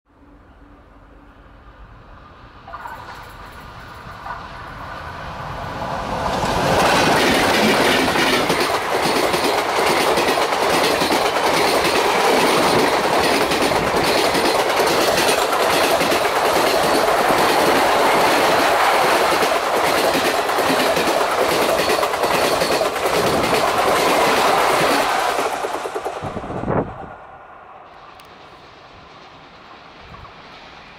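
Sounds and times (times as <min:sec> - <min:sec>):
diesel locomotives passing: 0:00.1 - 0:30.9
wheels clattering over rail joints: 0:06.3 - 0:26.2.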